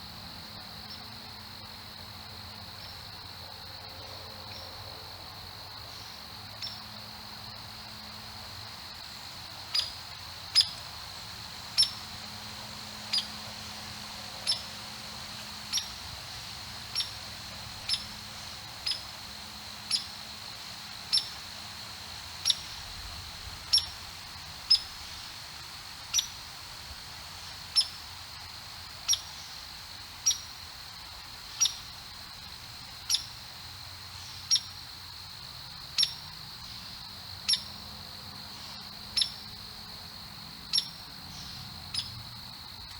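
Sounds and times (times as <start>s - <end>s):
chipmunk chip call: 9.7s - 10.8s, 11.8s - 12.0s, 13.1s - 13.4s, 14.4s - 14.7s, 15.7s - 16.0s, 16.9s - 17.2s, 17.8s - 18.2s, 18.8s - 19.1s, 19.9s - 20.2s, 21.1s - 21.4s, 22.4s - 23.0s, 23.7s - 24.0s, 26.1s - 26.4s, 27.7s - 28.0s, 29.1s - 29.4s, 30.2s - 30.5s, 31.5s - 31.9s, 33.1s - 33.3s, 34.5s - 34.8s, 36.0s - 36.2s, 37.5s - 37.7s, 39.1s - 39.5s, 40.7s - 42.2s.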